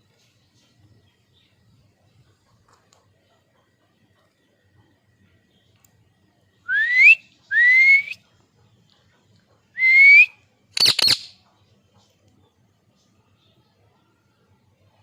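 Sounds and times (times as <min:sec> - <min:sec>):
parakeet rising whistles: 0:09.8 - 0:11.3
parakeet sharp harsh clicks: 0:10.8 - 0:11.3.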